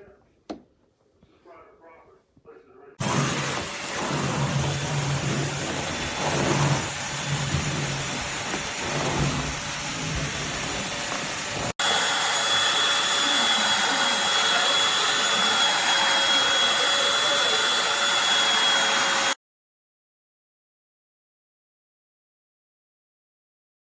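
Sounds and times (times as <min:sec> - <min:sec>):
vacuum cleaner running: 0:03.0 - 0:19.4.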